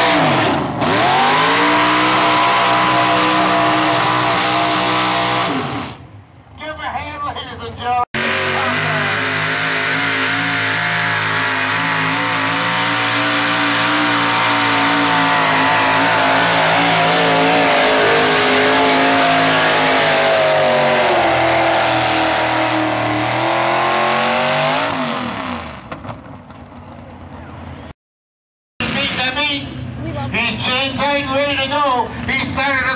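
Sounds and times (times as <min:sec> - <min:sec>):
truck engine at high revs: 0:00.0 - 0:06.2, 0:08.2 - 0:26.8.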